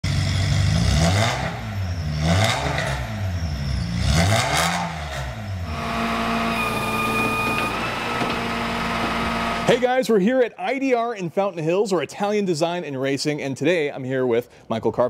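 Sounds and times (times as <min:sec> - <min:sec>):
race car engine revving: 0:00.0 - 0:09.8.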